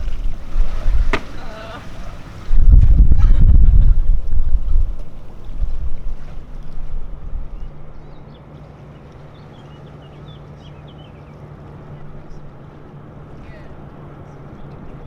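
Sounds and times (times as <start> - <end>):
wind gusting on microphone: 0.0 - 8.2.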